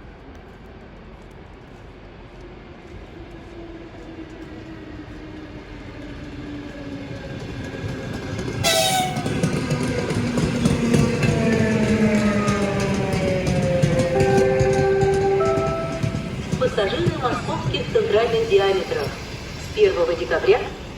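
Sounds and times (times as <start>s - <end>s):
electric train rumble: 4.8s - 20.9s
train horn: 8.6s - 9.6s, 13.8s - 16.3s.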